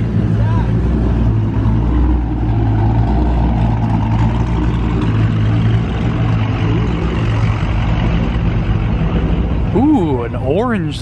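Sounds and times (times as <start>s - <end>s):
car engine exhaust rumble: 0.0s - 11.0s.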